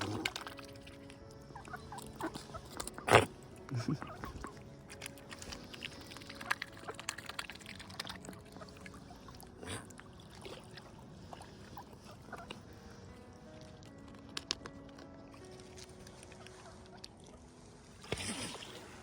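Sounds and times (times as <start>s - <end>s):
swan dabbling in water: 0.0s - 19.0s
small water splashes: 4.2s - 12.6s.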